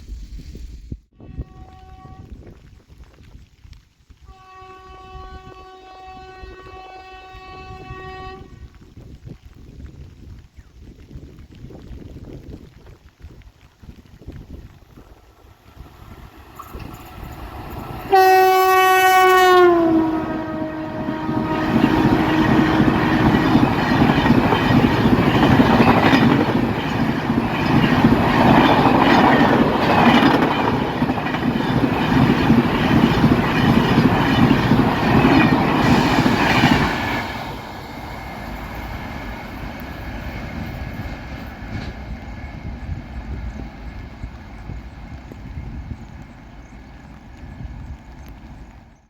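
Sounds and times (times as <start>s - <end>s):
train horn: 1.1s - 2.5s, 4.2s - 8.8s, 17.2s - 26.4s
train wheels clattering on rails: 14.9s - 49.0s.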